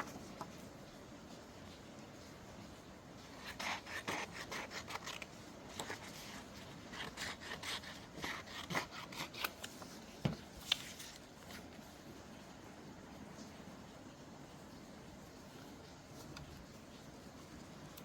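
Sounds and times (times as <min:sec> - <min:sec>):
paper rustling: 0:09.3 - 0:12.0.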